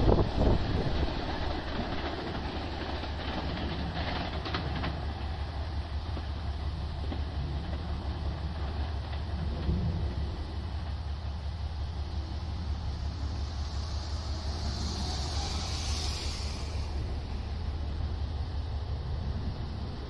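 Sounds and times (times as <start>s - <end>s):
wheels clicking over rail joints: 0.0s - 19.8s
electric train rumble: 0.0s - 20.0s.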